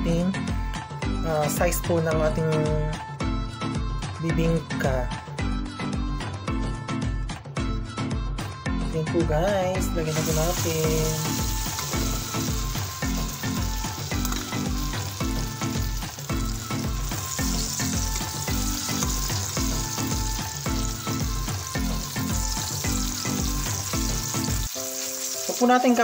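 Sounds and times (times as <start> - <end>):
background music with beat: 0.0 - 25.3
batter sizzling in oil: 9.9 - 26.0.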